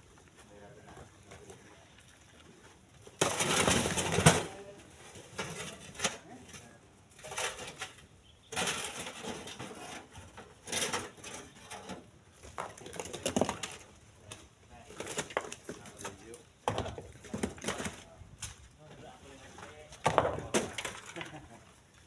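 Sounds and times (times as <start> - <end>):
stone chunks clattering together: 3.2 - 4.5, 7.2 - 13.9, 19.9 - 21.6.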